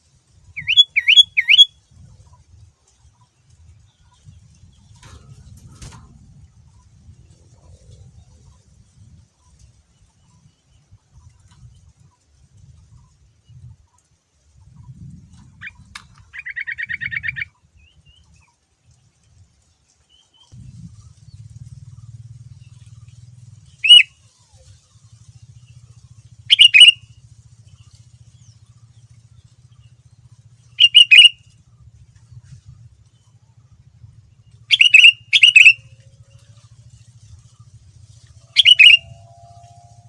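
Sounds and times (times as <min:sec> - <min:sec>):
faint low hum: 0:00.0 - 0:40.0
bird singing trills and calls: 0:00.5 - 0:01.7, 0:15.5 - 0:18.3, 0:20.1 - 0:31.6, 0:32.2 - 0:40.0.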